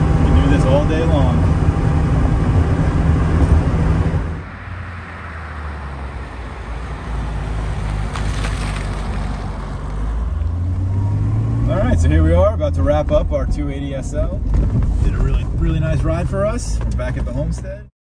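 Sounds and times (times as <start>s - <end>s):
road and engine noise inside car: 0.0s - 17.9s
car driving by: 3.0s - 13.5s.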